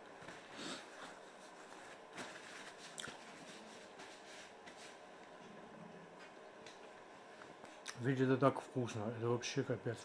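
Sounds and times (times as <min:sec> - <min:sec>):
paper rustling: 0:01.2 - 0:05.0.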